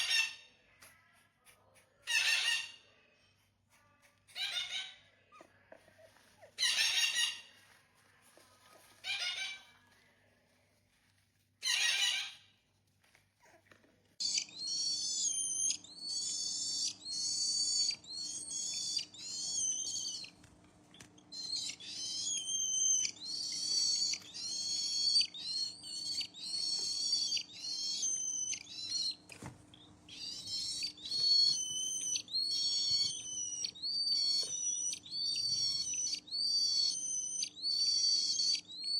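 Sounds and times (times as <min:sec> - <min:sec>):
parrot squawking: 0:00.0 - 0:00.5, 0:02.0 - 0:02.8, 0:04.3 - 0:05.0, 0:06.1 - 0:07.6, 0:09.0 - 0:09.8, 0:11.6 - 0:12.5, 0:14.2 - 0:20.3, 0:21.3 - 0:29.3, 0:30.1 - 0:38.9
parrot whistled calls: 0:14.2 - 0:20.4, 0:21.3 - 0:29.3, 0:30.1 - 0:38.9.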